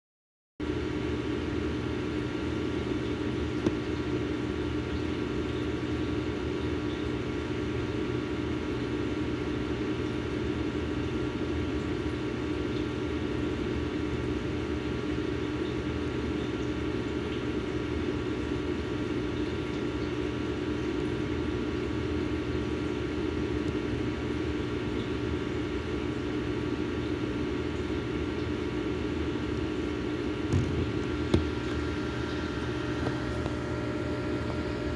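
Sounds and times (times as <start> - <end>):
small motor humming: 30.4 - 34.9.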